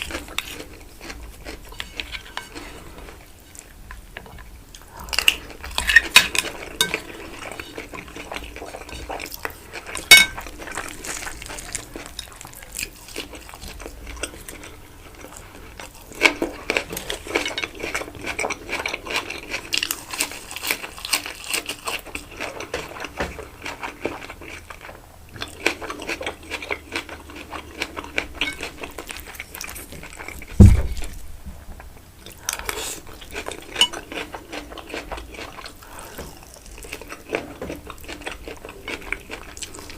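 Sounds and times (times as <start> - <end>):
chewing: 0.0 - 31.2, 31.8 - 39.9
cutlery scraping on a plate: 1.7 - 3.0, 10.0 - 10.4, 33.4 - 34.3
dull heavy thump: 30.6 - 31.8.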